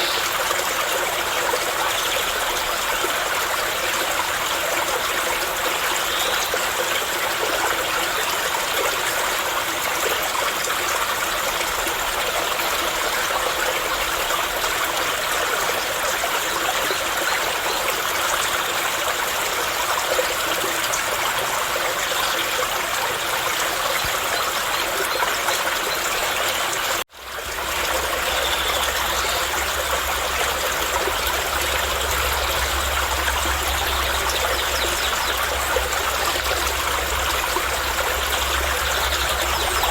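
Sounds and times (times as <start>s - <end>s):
running water flowing: 0.0s - 39.9s
low hum: 27.5s - 39.9s.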